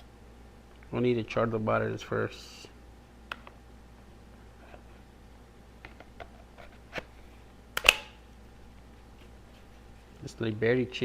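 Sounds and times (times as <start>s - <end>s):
sharp loud click: 7.8s - 8.2s.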